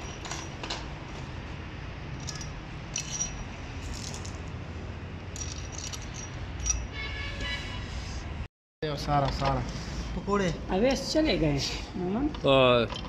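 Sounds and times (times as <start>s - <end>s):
small metal parts clinking: 0.0s - 0.8s, 2.1s - 4.5s, 5.3s - 6.9s, 12.3s - 13.0s.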